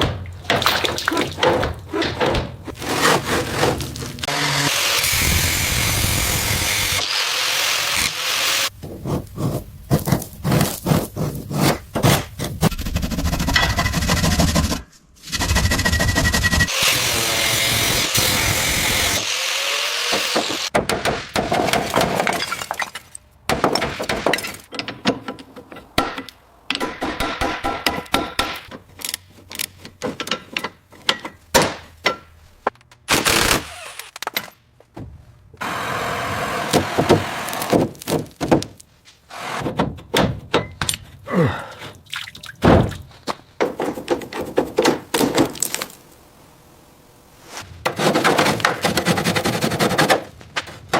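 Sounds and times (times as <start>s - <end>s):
knocks and cracks: 0.0s - 4.2s, 36.7s - 38.9s, 42.6s - 46.0s
tool scraping metal: 2.7s - 4.2s.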